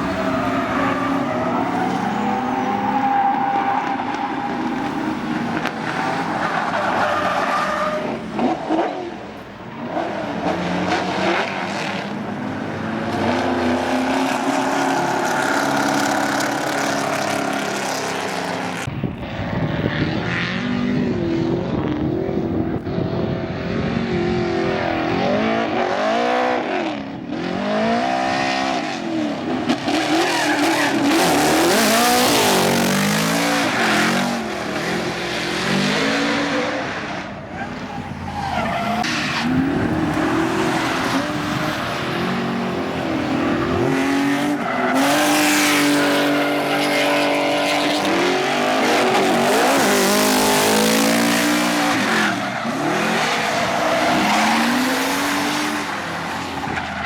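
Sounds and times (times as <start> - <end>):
car engine revving: 23.8 - 57.0.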